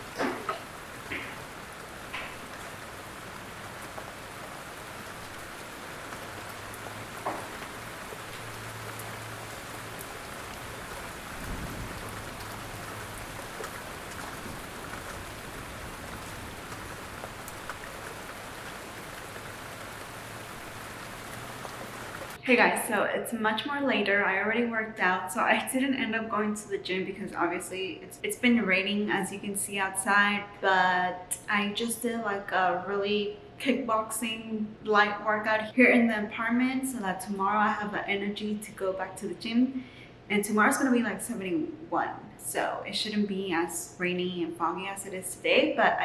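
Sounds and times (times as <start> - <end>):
steady rain falling: 0.0 - 22.4.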